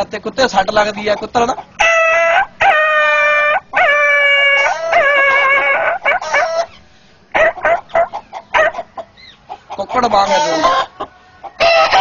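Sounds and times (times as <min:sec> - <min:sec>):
man imitating dog yelping: 0:02.2 - 0:06.7.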